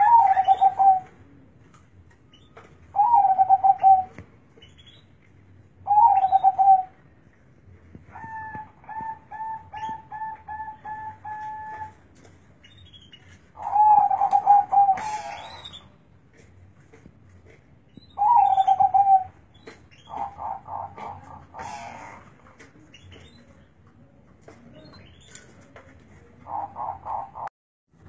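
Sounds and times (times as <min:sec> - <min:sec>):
dove cooing: 0:00.0 - 0:01.4, 0:02.9 - 0:04.2, 0:05.8 - 0:07.0, 0:08.1 - 0:12.0, 0:13.6 - 0:15.8, 0:18.2 - 0:19.4, 0:20.0 - 0:22.4, 0:24.7 - 0:27.5.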